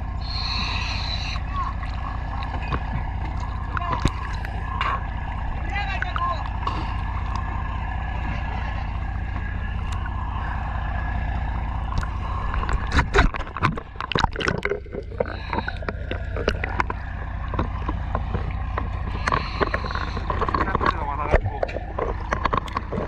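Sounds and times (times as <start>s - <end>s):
boat engine running: 0.0s - 23.0s
knocks and clatter: 12.5s - 23.0s.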